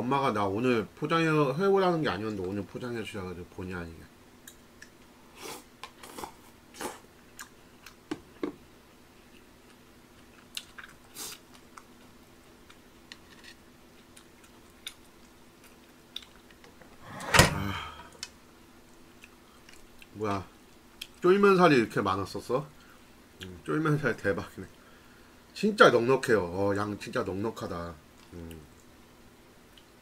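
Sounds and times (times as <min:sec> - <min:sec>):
faint steady hum: 0:00.0 - 0:30.0
chewing and mouth smacks: 0:05.8 - 0:08.0, 0:09.2 - 0:13.2, 0:13.9 - 0:16.6, 0:18.9 - 0:21.2.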